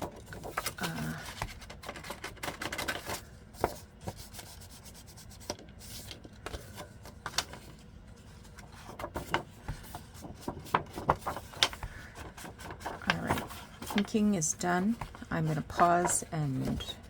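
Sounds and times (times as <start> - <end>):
tapping and rubbing on paper: 8.8 - 17.0.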